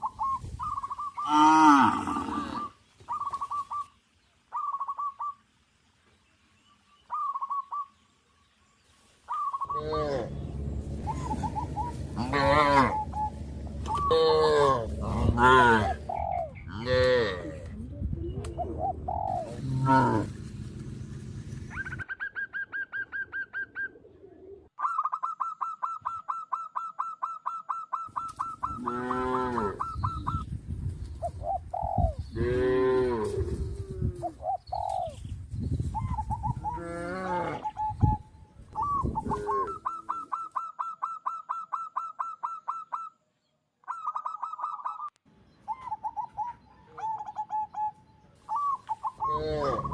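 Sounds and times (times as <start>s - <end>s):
drawn-out bird calls: 0.0s - 5.4s, 6.8s - 8.0s, 9.2s - 17.7s, 18.4s - 33.6s, 34.2s - 49.9s
rapid pulsed bird call: 2.5s - 5.5s, 6.6s - 16.7s, 20.3s - 24.1s, 24.8s - 29.0s, 37.6s - 49.9s.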